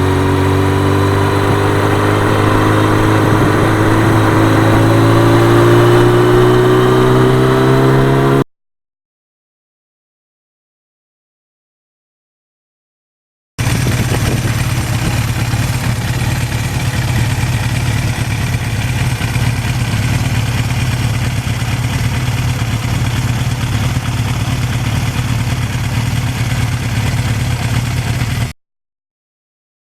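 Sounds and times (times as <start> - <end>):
motorcycle engine running: 0.0 - 8.4, 13.6 - 28.6.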